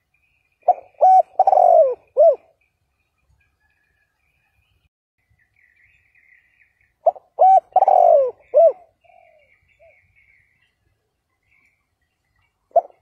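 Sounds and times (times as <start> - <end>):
dove cooing: 0.6 - 2.6, 7.0 - 10.0, 12.7 - 13.0.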